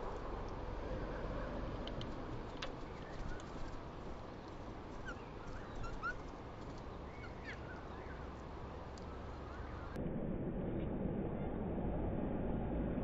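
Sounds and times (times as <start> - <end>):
low background rumble: 0.0 - 13.0
small birds chirping: 1.1 - 10.0.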